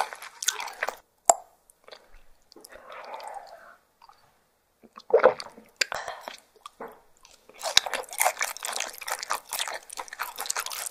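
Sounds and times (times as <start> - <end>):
wet crackly chewing: 4.9 - 10.9.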